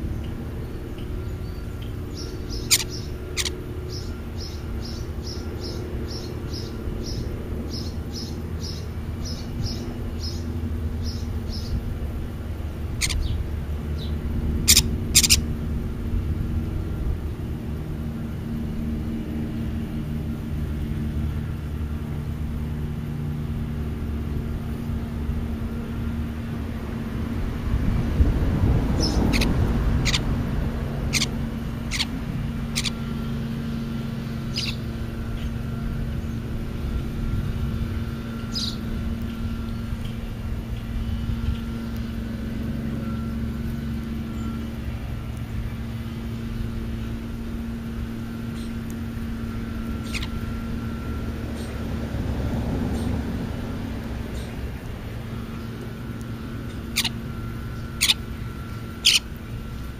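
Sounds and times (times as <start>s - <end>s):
steady low rumble: 0.0s - 59.9s
bird chirping rapid high notes: 2.2s - 5.8s, 13.0s - 13.3s, 14.7s - 15.4s, 31.1s - 33.1s, 34.5s - 34.8s, 50.0s - 50.4s, 56.8s - 59.3s.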